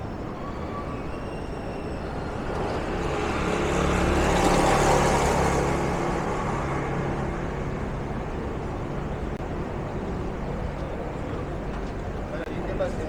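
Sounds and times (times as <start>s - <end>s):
car driving past: 1.0s - 9.4s.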